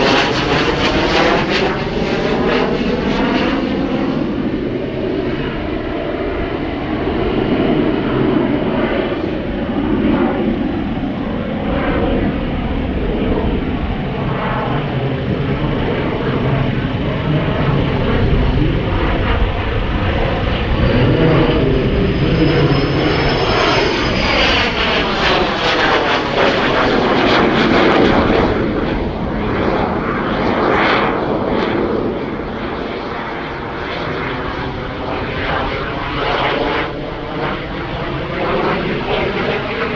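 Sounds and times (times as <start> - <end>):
jet engines roaring: 0.0 - 39.9.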